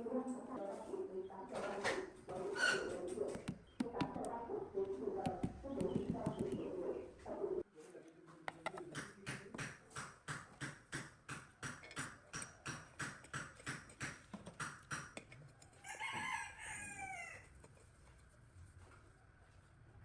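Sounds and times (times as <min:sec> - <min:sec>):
rooster crowing: 0:15.7 - 0:17.5.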